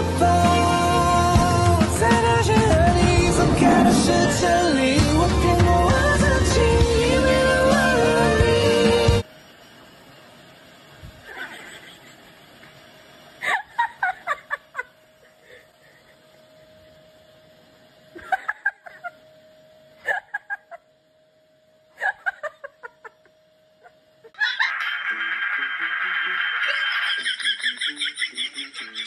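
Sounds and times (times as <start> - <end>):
faint steady hum: 0.0 - 29.0
person laughing: 11.2 - 12.2, 13.4 - 16.2, 18.2 - 19.2, 20.0 - 20.8, 22.0 - 23.2, 23.8 - 29.0.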